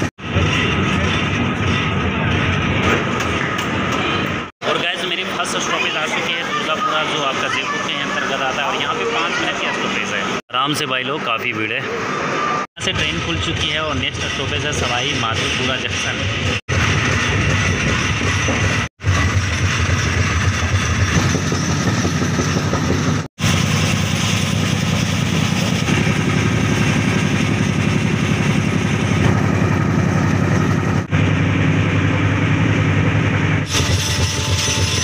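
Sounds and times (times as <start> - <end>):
train wheels rumbling on rails: 0.0 - 4.5, 12.8 - 35.0.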